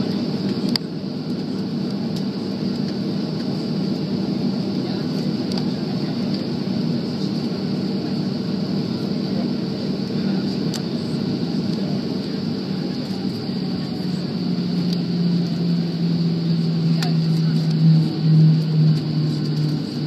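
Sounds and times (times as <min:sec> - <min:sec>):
airliner cabin drone: 0:00.0 - 0:20.0
faint high whine: 0:08.3 - 0:20.0.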